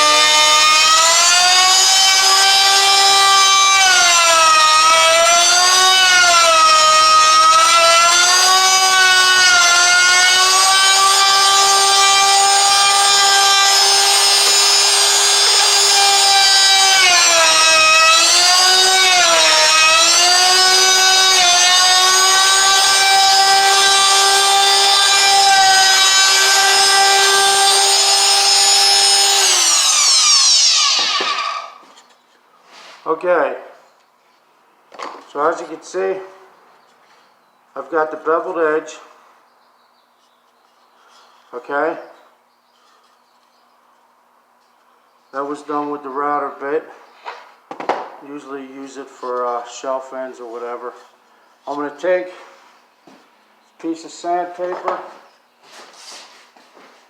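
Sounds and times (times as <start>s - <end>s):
router winding down: 0.0s - 31.8s
electric router cutting wood: 0.0s - 31.9s.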